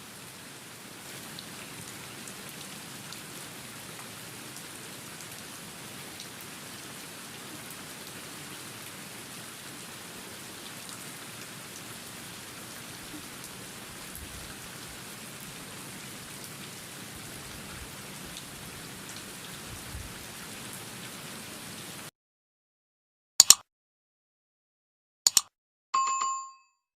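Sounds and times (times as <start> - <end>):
steady rain falling: 0.0 - 22.1
sharp loud click: 23.4 - 23.6, 25.3 - 25.5.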